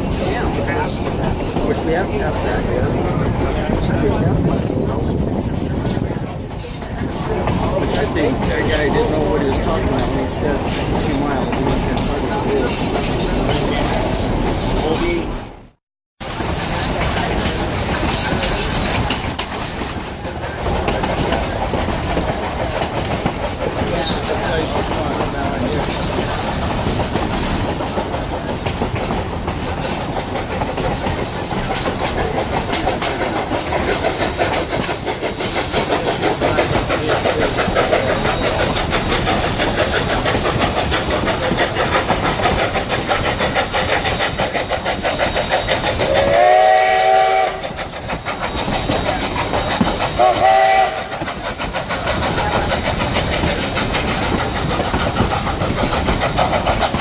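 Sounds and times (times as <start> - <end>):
train wheels clattering on rails: 0.0 - 57.0
steam whistle blasts: 46.1 - 47.6, 50.2 - 51.2.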